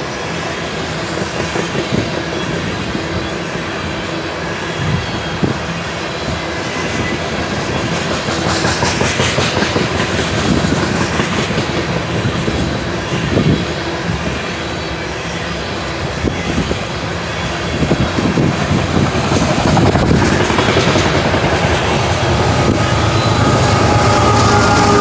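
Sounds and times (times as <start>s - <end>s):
steel wheels rumbling on rails: 0.0s - 25.0s
clickety-clack over rail joints: 0.6s - 3.7s, 5.4s - 14.6s, 17.7s - 25.0s
locomotives approaching: 7.2s - 25.0s.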